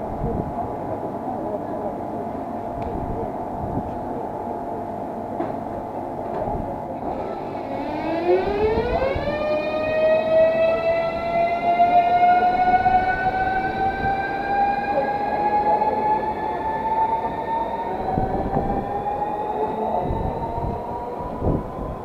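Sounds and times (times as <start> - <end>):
train running rumble: 0.0 - 22.0
electric train motor whine: 7.0 - 22.0.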